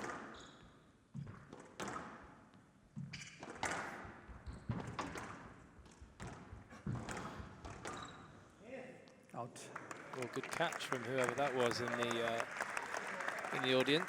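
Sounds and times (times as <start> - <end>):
squash ball thuds echoing: 1.2 - 8.2.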